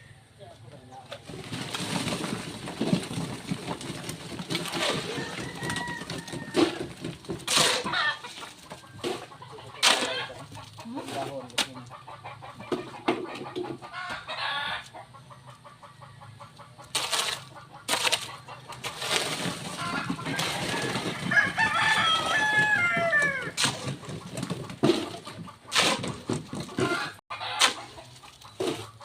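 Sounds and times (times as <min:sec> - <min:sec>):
chickens clucking: 0:00.0 - 0:29.0
rooster crowing: 0:04.8 - 0:07.0, 0:19.8 - 0:23.6.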